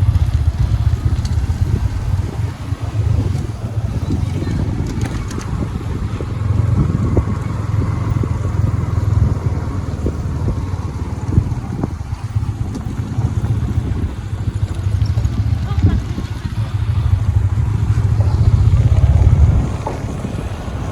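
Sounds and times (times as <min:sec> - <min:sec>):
motorcycle engine droning: 0:00.0 - 0:20.9.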